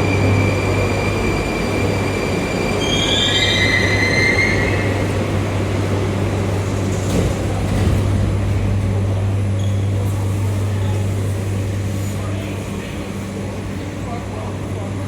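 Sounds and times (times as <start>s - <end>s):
wheels squealing on rails: 0.0s - 5.2s
train rumble and hum: 0.0s - 15.0s.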